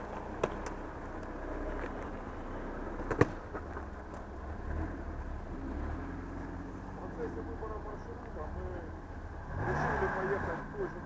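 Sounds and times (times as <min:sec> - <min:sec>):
vehicle engine low rumble: 0:00.0 - 0:11.0.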